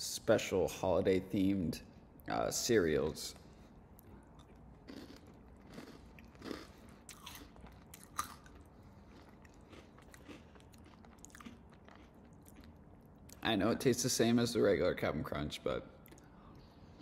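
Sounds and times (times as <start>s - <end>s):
cereal crunching while chewing: 4.0s - 13.3s.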